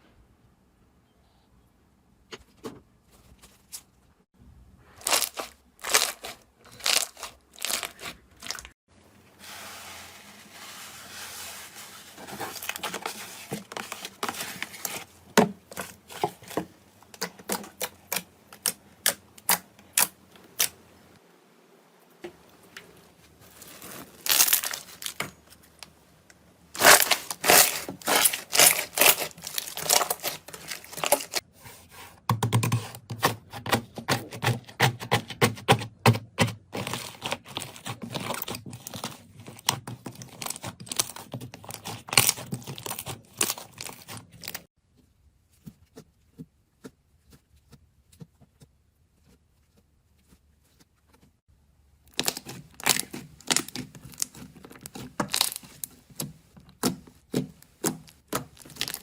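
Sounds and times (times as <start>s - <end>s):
slime popping and crackling: 5.0s - 8.7s, 23.9s - 25.2s, 26.8s - 31.4s, 52.1s - 59.0s.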